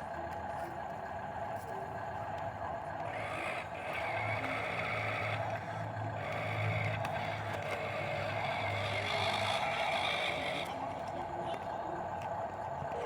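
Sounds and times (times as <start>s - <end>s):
electric motor and gears whining: 3.0s - 11.0s.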